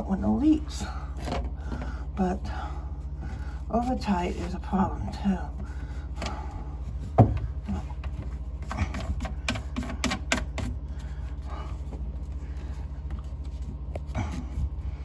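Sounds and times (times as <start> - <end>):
steady low hum: 0.0 - 15.0
pipe fittings clicking and knocking: 7.0 - 11.1.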